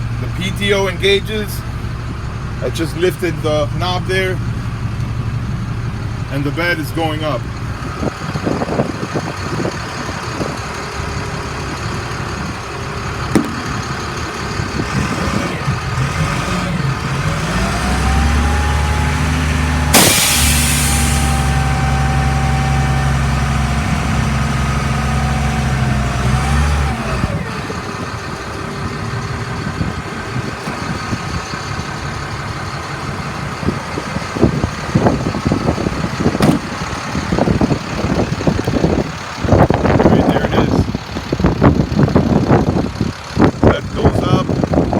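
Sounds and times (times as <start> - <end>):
diesel engine revving: 0.0 - 44.9
short sharp hiss: 19.9 - 21.7.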